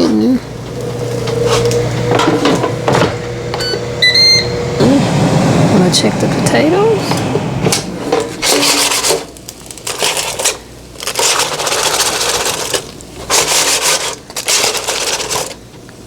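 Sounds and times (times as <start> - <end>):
food rattling in air fryer basket: 8.4 - 15.7.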